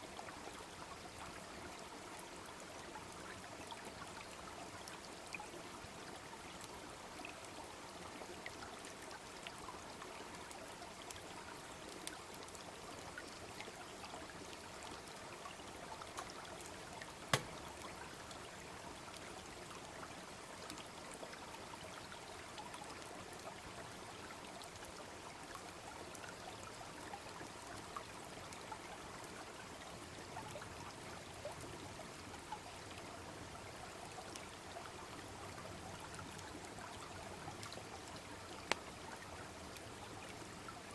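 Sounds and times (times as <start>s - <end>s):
brook flowing: 0.0s - 40.9s
bonfire crackling and popping: 17.3s - 17.8s, 38.6s - 38.9s.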